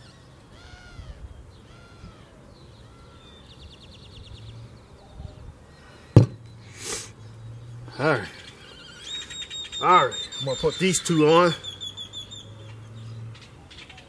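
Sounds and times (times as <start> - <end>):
birds calling: 0.0 - 14.0
sharp knock: 6.2 - 6.4.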